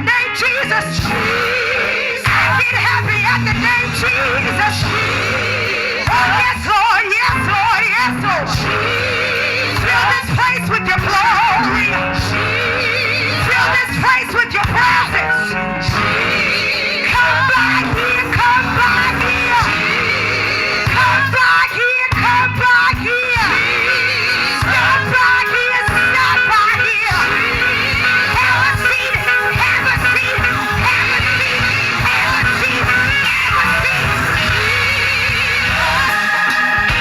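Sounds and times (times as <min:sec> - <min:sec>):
band accompaniment: 0:00.0 - 0:37.0
gospel singing with vibrato: 0:00.0 - 0:37.0
congregation shouting: 0:15.0 - 0:21.8.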